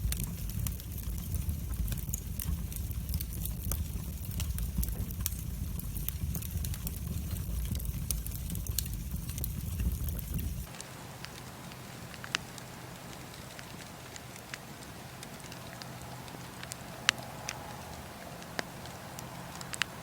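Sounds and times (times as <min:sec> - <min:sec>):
low steady rumble: 0:00.0 - 0:20.0
wood fire crackling: 0:00.0 - 0:20.0.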